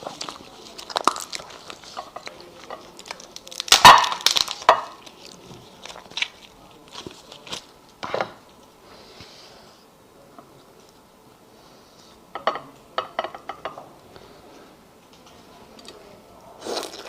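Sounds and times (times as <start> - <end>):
eating crunches and clicks: 0.0 - 7.7
loud crunching bite: 0.0 - 7.7, 16.6 - 17.0.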